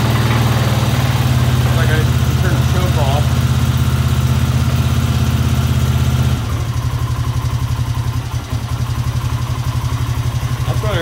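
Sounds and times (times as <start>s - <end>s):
atv engine idling: 0.0s - 11.0s.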